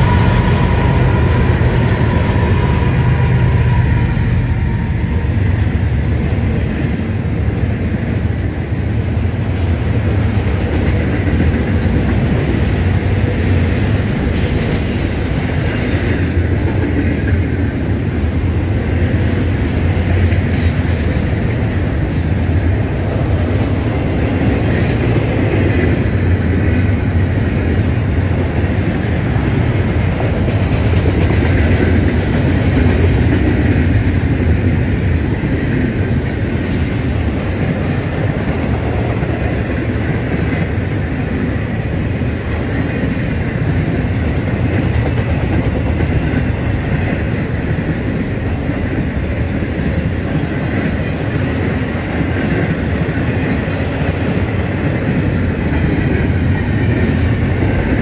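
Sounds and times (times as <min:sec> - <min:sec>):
high wheel squeals: 0:00.0 - 0:05.4, 0:06.0 - 0:07.8
diesel locomotive engine: 0:00.0 - 0:58.0
freight train wheels rumbling: 0:00.0 - 0:58.0
rail cars clattering: 0:00.0 - 0:58.0.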